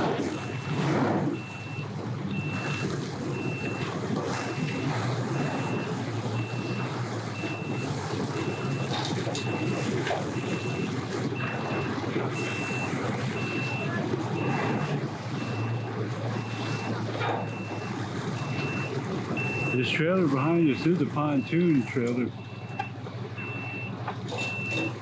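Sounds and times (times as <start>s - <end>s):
engine running low: 0.0s - 25.0s
vehicle backup alarm beeping: 0.0s - 25.0s.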